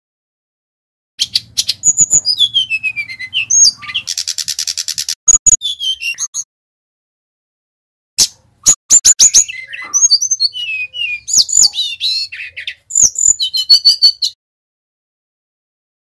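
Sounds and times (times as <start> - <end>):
bird chips and whistled notes: 1.2 - 6.5, 8.2 - 14.4
dry bird trill: 1.2 - 6.5, 8.2 - 14.4.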